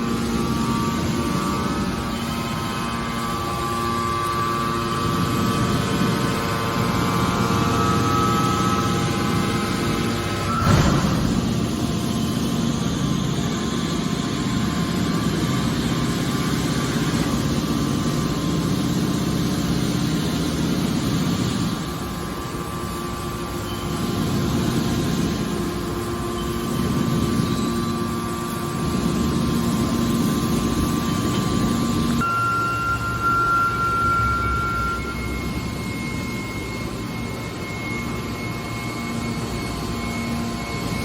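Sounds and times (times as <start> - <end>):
hydraulic baler machine drone: 0.0 - 41.0.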